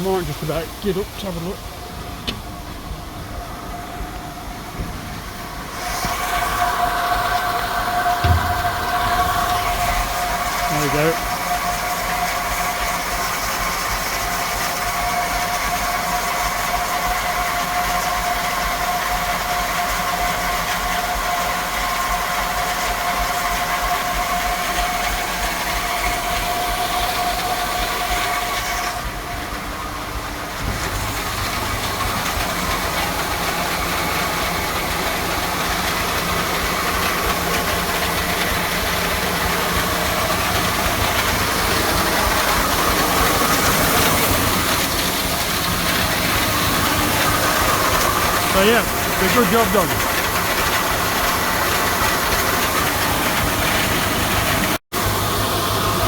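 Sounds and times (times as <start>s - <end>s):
hydraulic whine: 0.0s - 19.6s
tractor engine running: 0.0s - 56.0s.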